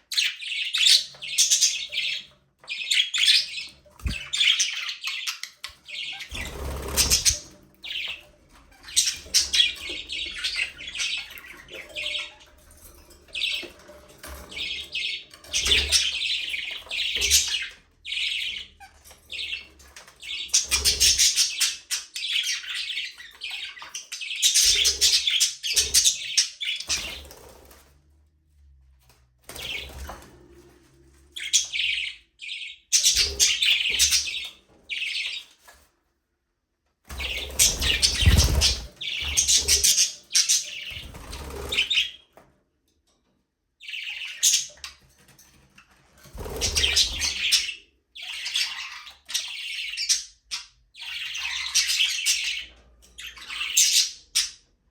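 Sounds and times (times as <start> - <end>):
budgerigars chattering and chirping: 0.1 - 12.5, 14.5 - 27.6, 31.4 - 35.5, 37.2 - 42.2, 43.8 - 45.0, 46.4 - 54.6.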